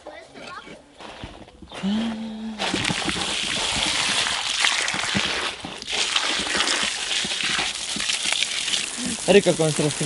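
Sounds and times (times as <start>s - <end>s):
hose spraying water on bricks: 2.6s - 10.0s.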